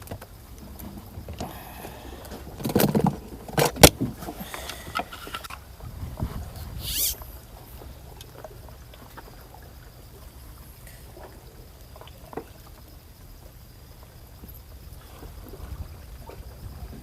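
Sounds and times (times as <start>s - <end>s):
steady low rumble: 0.3s - 12.0s.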